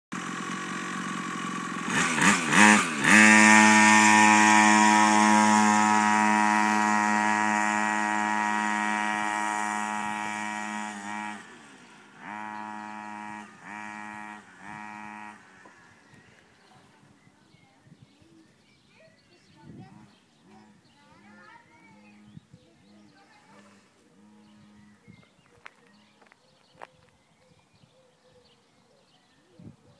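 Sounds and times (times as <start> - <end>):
dirt bike engine revving: 0.1 - 16.5, 20.6 - 26.2.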